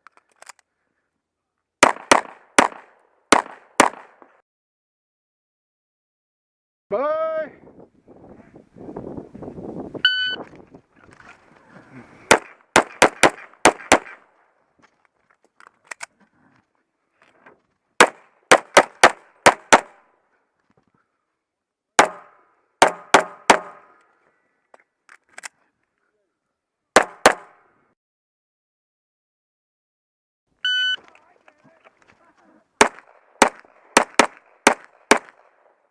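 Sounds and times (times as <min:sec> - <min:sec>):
pistol shots: 0:01.8 - 0:04.2, 0:12.3 - 0:14.2, 0:18.0 - 0:20.0, 0:22.0 - 0:23.8, 0:27.0 - 0:27.6, 0:32.8 - 0:35.7.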